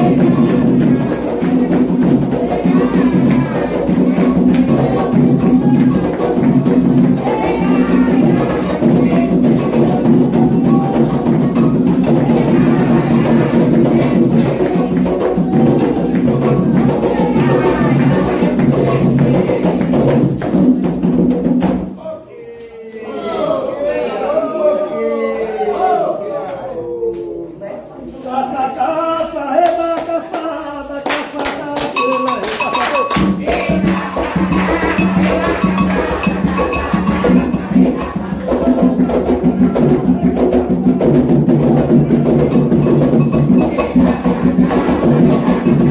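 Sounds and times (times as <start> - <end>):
voices singing: 0.0 - 20.6, 22.0 - 45.9
hand drums playing: 0.0 - 21.8, 31.9 - 45.9
deep drum: 0.0 - 21.9, 33.2 - 45.9
struck bell: 32.0 - 33.4
struck bell keeping time: 32.0 - 38.1.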